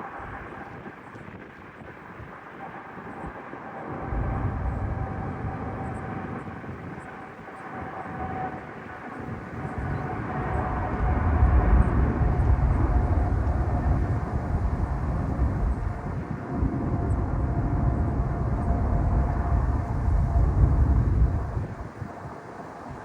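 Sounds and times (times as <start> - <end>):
jet engines at takeoff power: 0.0 - 23.0
steady engine whine: 2.6 - 23.0
deep rumble: 3.9 - 6.4, 9.8 - 21.9.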